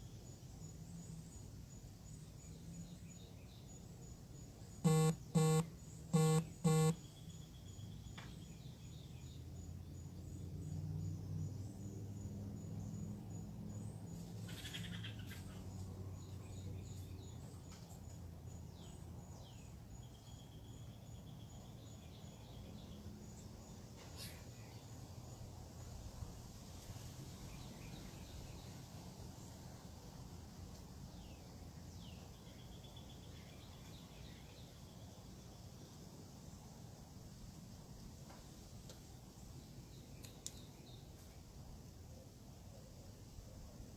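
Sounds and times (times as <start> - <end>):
birds chirping: 4.9 - 7.3.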